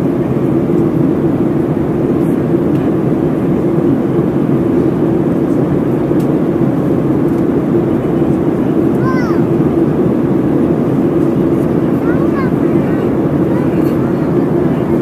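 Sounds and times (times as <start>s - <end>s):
airplane cabin noise in flight: 0.0s - 15.0s.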